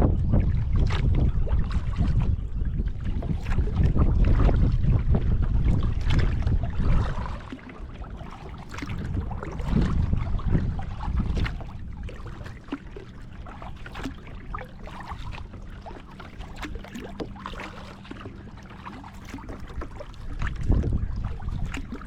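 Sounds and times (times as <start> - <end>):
steady low rumble: 0.0 - 16.0, 19.6 - 22.0
small splashes: 6.0 - 22.0.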